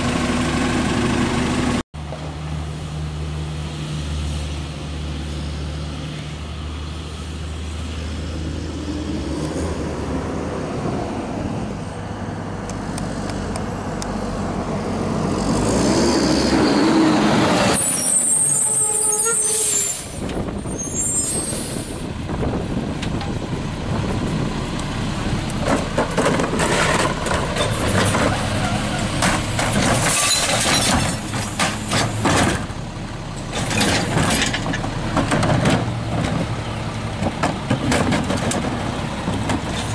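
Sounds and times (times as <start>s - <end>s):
diesel engine hum: 0.0s - 39.9s
air brakes hissing: 17.8s - 22.1s.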